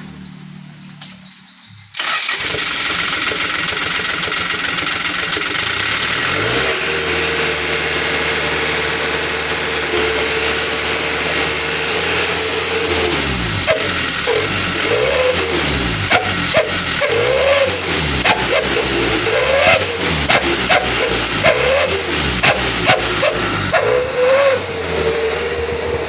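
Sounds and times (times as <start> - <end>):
truck engine revving: 0.0 - 26.0
howling exhaust whistle: 6.4 - 26.0.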